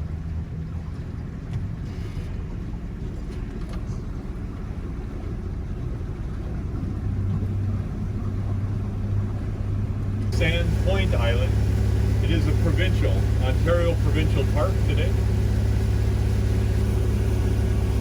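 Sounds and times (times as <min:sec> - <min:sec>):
boat motor hum: 0:00.0 - 0:18.0
water rushing: 0:04.1 - 0:18.0.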